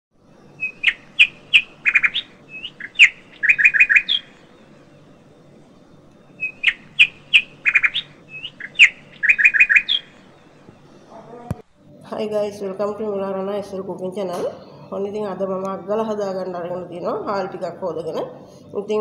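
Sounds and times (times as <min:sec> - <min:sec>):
birdsong chirps: 0:00.3 - 0:11.4.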